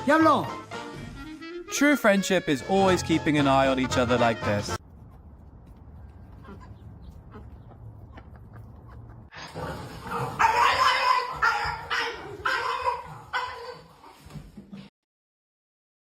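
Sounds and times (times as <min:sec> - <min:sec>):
loud animal calls: 0:06.3 - 0:14.2.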